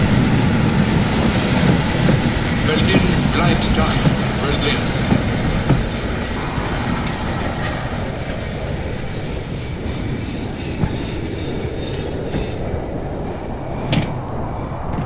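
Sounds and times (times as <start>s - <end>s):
train rolling on rails: 0.0s - 15.0s
high-pitched wheel squeal: 6.3s - 15.0s.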